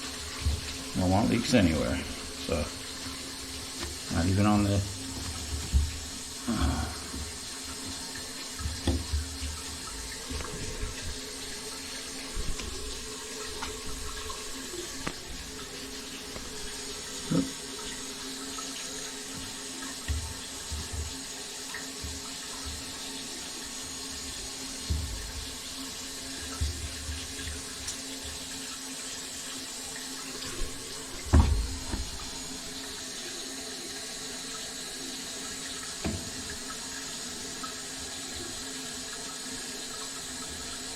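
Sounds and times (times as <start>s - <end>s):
tap water running: 0.0s - 40.9s
knocks and bumps: 31.2s - 32.3s.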